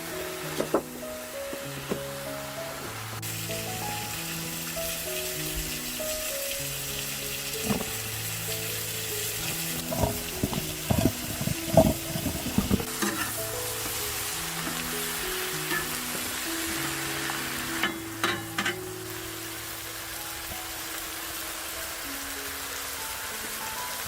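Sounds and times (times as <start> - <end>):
food sizzling on a griddle: 0.0 - 24.0
soft background music: 0.0 - 24.0
utensil knocking and scraping: 0.6 - 0.9, 7.6 - 8.0, 9.4 - 14.0.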